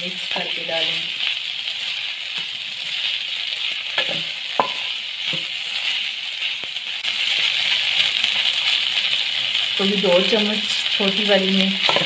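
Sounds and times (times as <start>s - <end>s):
chicken sizzling in hot oil: 0.0s - 12.0s
wooden spatula clacking on pan: 4.0s - 5.5s.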